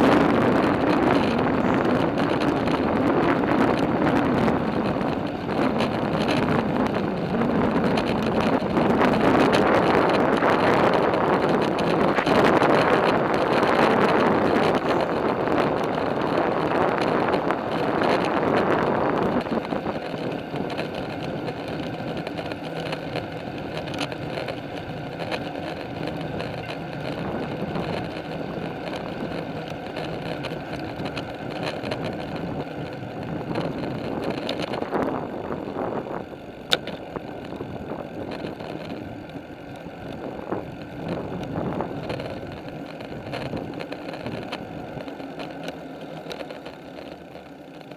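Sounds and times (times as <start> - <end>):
wind blowing on microphone: 0.0 - 45.5
bicycle riding noise: 0.0 - 47.9
sharp click: 36.7 - 37.0.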